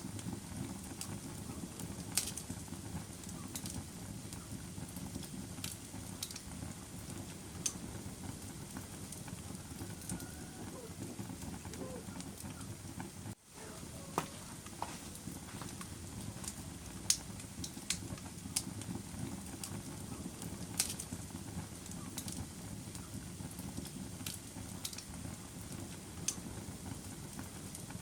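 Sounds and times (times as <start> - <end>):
fire crackles and pops: 0.0 - 28.0
low rush of flames: 0.0 - 28.0.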